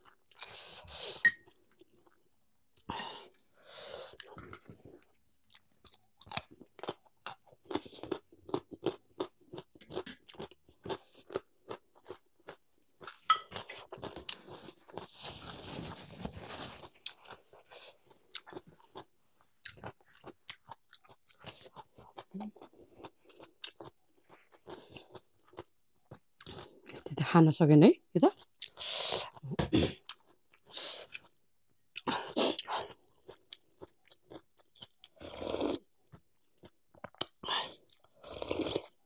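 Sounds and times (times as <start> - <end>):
person chewing and crunching food: 0.0 - 2.9, 4.0 - 27.0, 28.3 - 39.0
rustling noise: 15.1 - 17.0.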